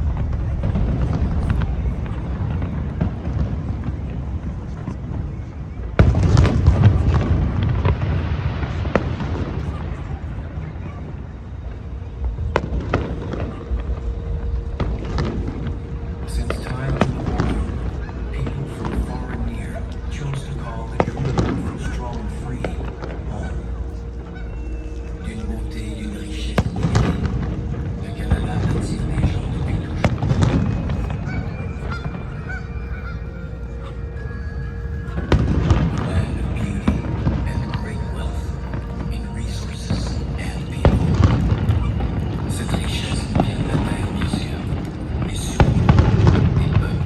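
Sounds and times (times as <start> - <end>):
low rumble over loudspeakers: 0.0 - 47.0
geese honking: 12.8 - 47.0.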